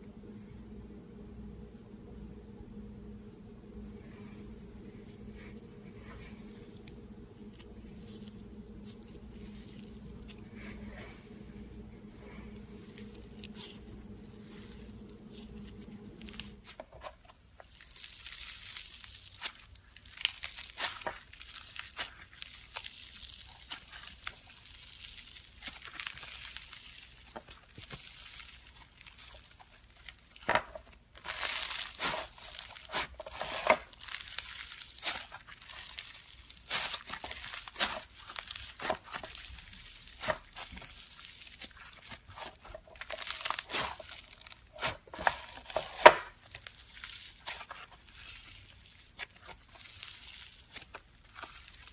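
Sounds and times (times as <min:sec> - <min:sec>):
slime crackling and popping: 0:17.6 - 0:51.9.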